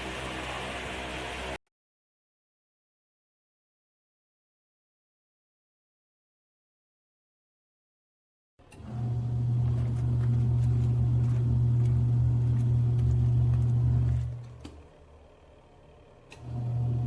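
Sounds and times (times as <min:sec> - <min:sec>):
washing machine motor humming: 0:00.0 - 0:01.6, 0:08.6 - 0:17.0.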